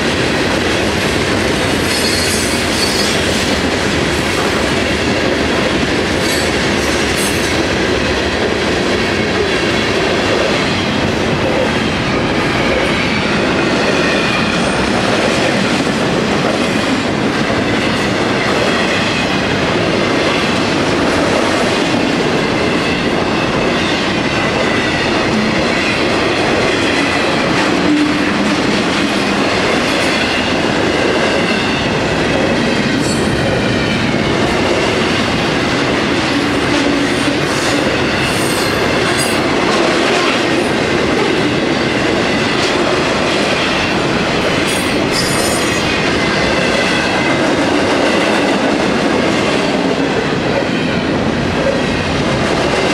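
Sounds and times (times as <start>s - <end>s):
freight train rumbling past: 0.0s - 52.9s.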